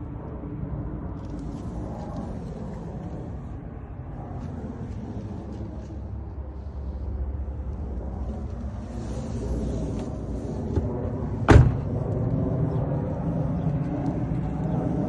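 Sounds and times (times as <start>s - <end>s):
door slamming: 11.5s - 11.9s.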